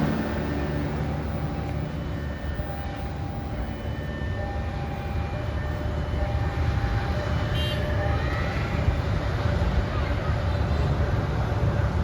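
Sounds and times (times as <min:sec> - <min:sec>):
train rumbling past: 0:00.0 - 0:02.3.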